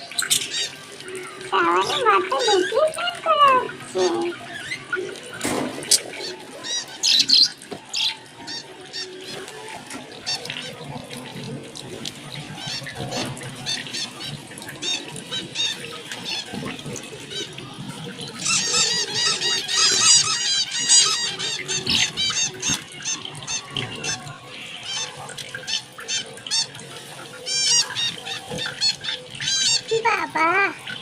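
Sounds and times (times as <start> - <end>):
cage birds chirping: 0.0 - 31.0.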